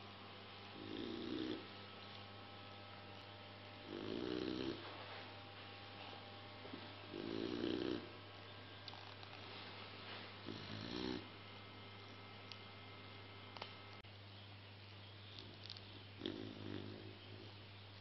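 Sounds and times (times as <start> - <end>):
faint steady hum: 0.0 - 18.0
puppy snoring: 0.7 - 1.8, 3.8 - 4.9, 7.1 - 8.2, 10.4 - 12.2, 16.2 - 17.5.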